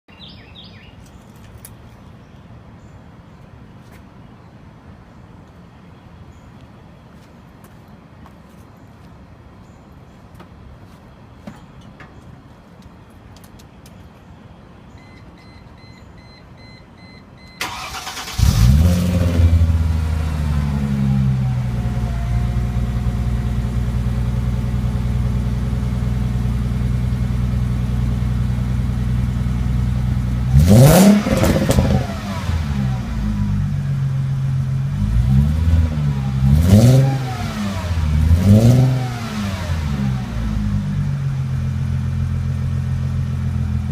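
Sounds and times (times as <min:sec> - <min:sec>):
faint beep: 0:14.9 - 0:17.6
car engine starting and revving: 0:17.6 - 0:27.6, 0:28.9 - 0:43.9.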